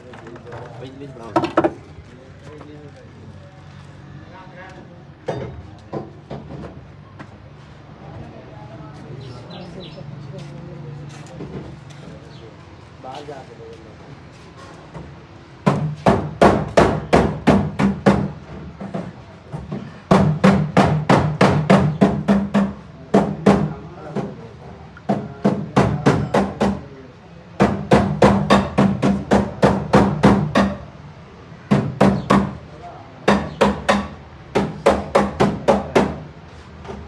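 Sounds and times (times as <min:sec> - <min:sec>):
sharp ringing knocks: 0:27.6 - 0:30.9, 0:33.3 - 0:36.2.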